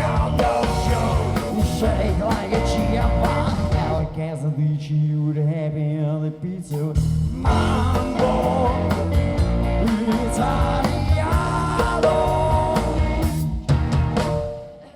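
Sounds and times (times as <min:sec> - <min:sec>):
live rock band playing: 0:00.0 - 0:04.1, 0:07.0 - 0:14.9
electric guitar chords: 0:00.0 - 0:04.2, 0:07.2 - 0:14.9.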